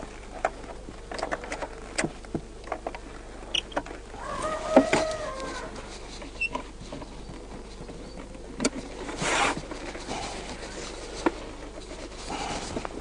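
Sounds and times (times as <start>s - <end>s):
wooden scrape: 3.9s - 13.0s.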